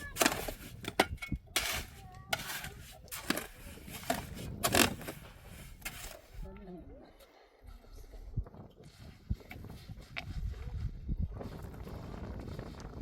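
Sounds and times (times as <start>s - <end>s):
hand tools scraping and knocking: 0.0s - 6.4s.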